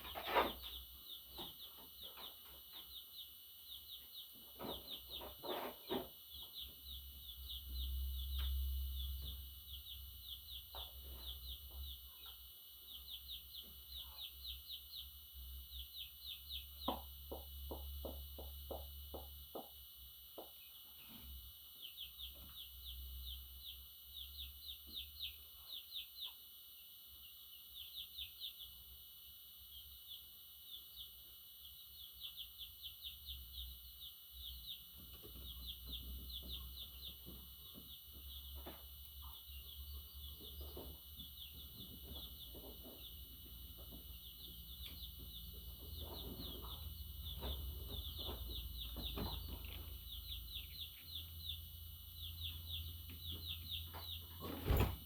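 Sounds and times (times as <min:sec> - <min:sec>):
budgerigars chirping: 0:34.4 - 0:54.9.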